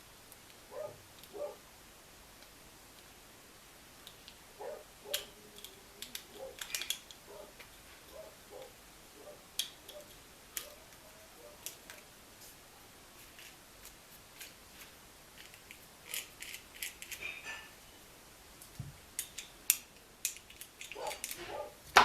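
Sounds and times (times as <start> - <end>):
metal parts clicking and clinking: 5.1 - 7.2, 15.4 - 17.7, 19.2 - 21.6.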